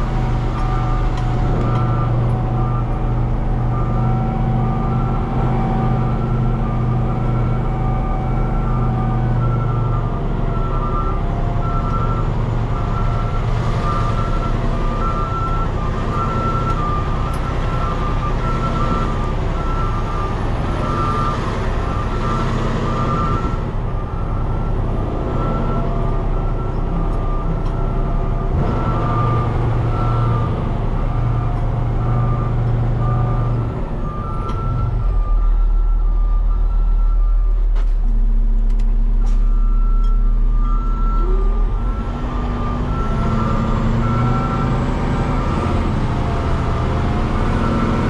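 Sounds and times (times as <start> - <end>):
diesel truck engine running: 0.0 - 48.0
backup alarm beeping: 0.4 - 37.4.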